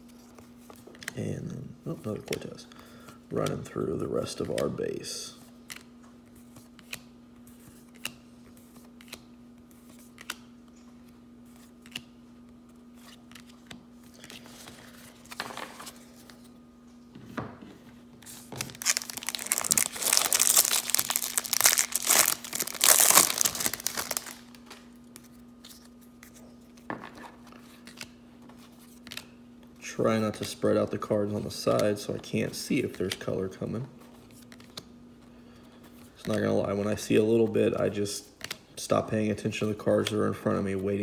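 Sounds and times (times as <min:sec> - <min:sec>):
cards being handled clicking: 0:06.5 - 0:10.9, 0:11.5 - 0:14.4
plastic wrapper crinkling and tearing: 0:18.4 - 0:24.8.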